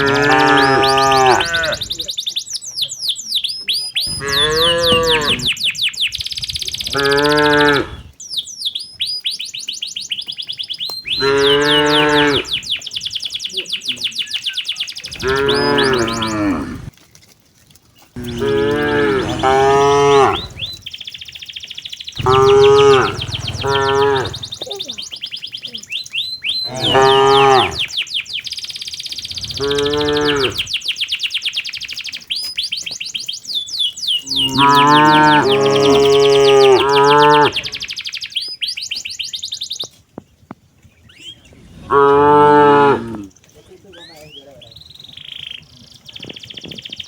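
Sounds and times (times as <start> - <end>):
cow mooing: 0.0 - 1.9, 4.1 - 5.5, 6.9 - 8.1, 11.1 - 12.6, 15.2 - 16.9, 18.2 - 20.8, 22.2 - 24.6, 26.6 - 27.9, 29.4 - 30.7, 34.3 - 37.8, 41.7 - 43.3
birds chirping: 0.0 - 17.0, 17.8 - 47.0
fast high chirps: 18.2 - 31.4.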